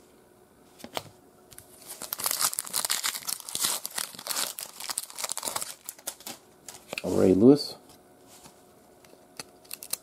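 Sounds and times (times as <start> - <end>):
plastic wrapper tearing and crinkling: 1.8 - 6.4, 9.6 - 10.0.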